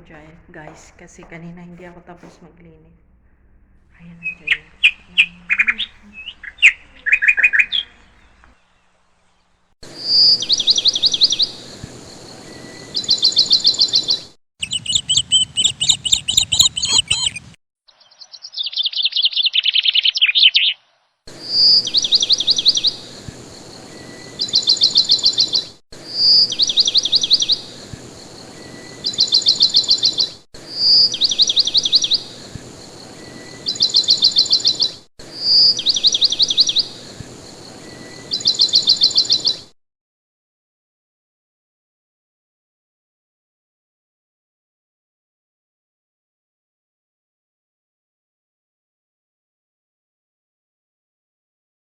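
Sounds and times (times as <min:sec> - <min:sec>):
bird chirps and trills: 0:04.0 - 0:20.8, 0:21.4 - 0:39.7.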